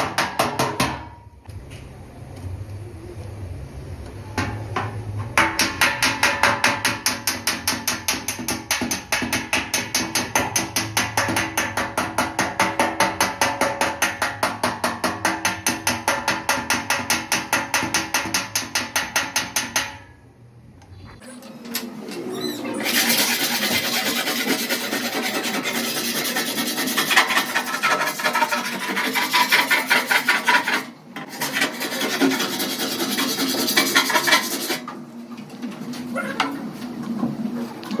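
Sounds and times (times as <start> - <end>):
hand sanding car body panel: 22.9 - 34.8.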